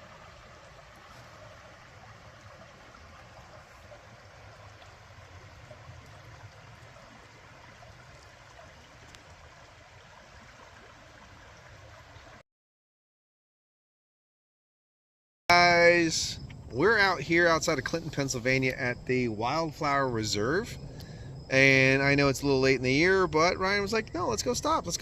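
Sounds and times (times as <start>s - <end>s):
faint steady rushing noise: 15.5s - 25.0s.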